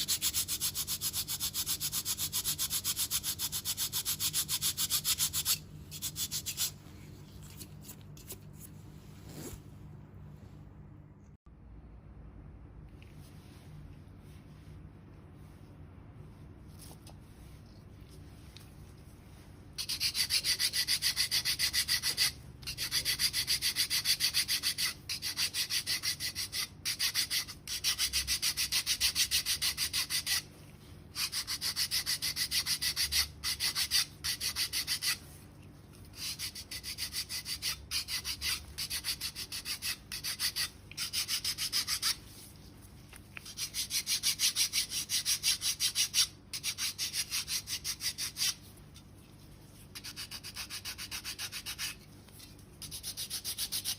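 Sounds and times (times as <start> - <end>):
foot file rasping on skin: 19.8 - 30.5, 31.2 - 35.2, 36.1 - 42.2, 43.4 - 48.6, 50.0 - 53.9.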